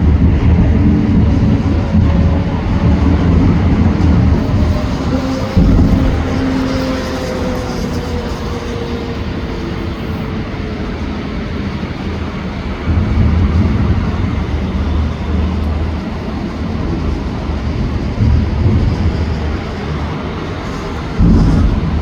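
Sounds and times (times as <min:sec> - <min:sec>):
fireworks booming: 0:04.0 - 0:08.7, 0:20.9 - 0:22.0
fireworks crackling: 0:04.4 - 0:08.6.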